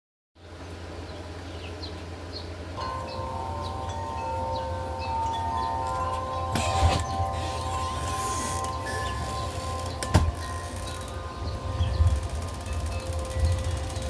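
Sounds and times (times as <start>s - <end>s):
low rumble of wind: 0.4s - 14.0s
wind chimes ringing: 2.8s - 14.0s.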